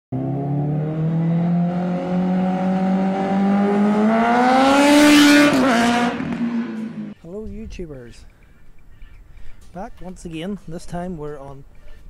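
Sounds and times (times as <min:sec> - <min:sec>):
motorcycle engine accelerating: 0:00.1 - 0:07.2.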